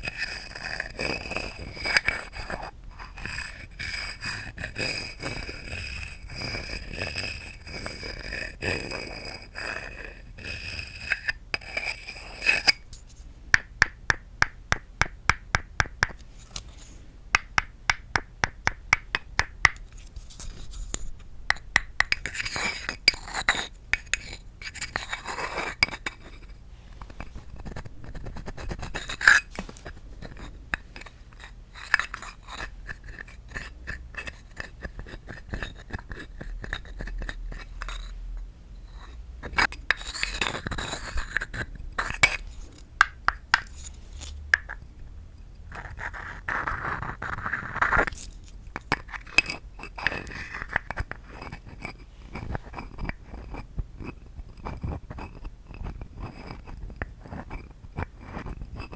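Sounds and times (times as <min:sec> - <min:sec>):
tapping on wood: 0:17.4 - 0:19.8, 0:43.0 - 0:43.7.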